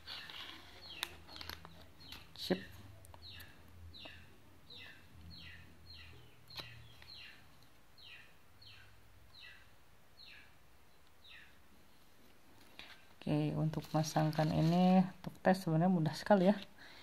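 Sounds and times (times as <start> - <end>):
bird chirping: 0.0 - 11.6.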